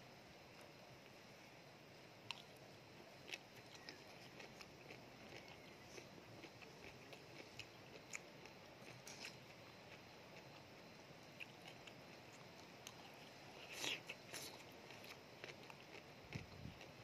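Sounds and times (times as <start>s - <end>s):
close-up chewing: 3.2s - 10.7s, 11.3s - 17.0s.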